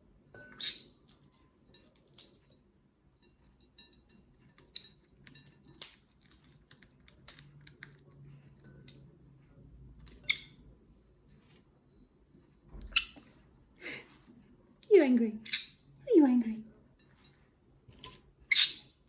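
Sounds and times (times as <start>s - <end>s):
beak cracking nut shell: 4.6s - 8.2s.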